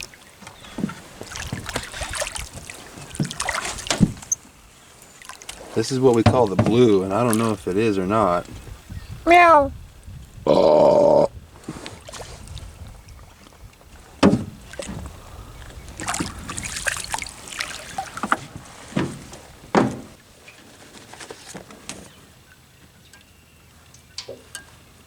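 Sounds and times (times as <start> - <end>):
water splashing: 0.0 - 8.6, 13.8 - 20.2
knocks against a boat: 0.5 - 4.4, 6.1 - 7.5, 14.2 - 15.1, 17.8 - 20.2.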